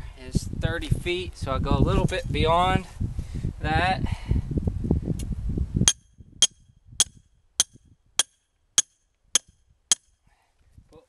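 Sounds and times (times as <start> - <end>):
hammer striking metal stake: 5.9 - 10.2.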